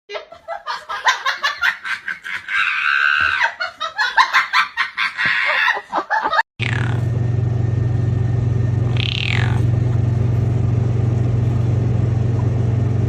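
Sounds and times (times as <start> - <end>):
person laughing hard: 0.1 - 6.4
high-pitched squeals: 8.9 - 9.7.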